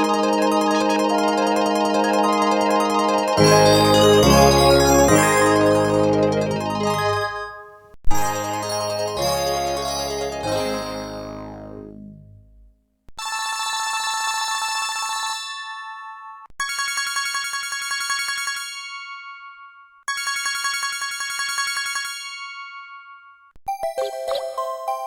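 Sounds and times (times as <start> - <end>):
trilling phone ringtone: 0.0 - 7.7.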